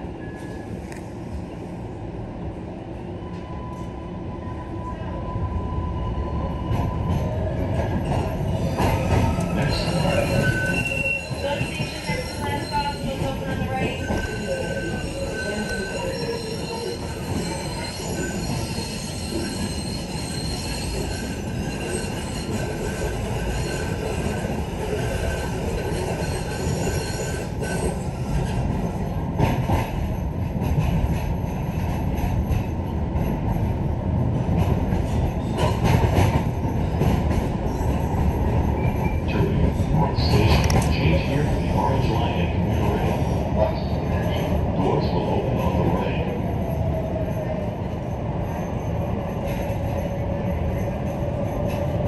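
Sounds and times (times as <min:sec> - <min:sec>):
train rumbling with clacks: 0:00.0 - 0:52.0
train wheels squealing: 0:08.0 - 0:28.6.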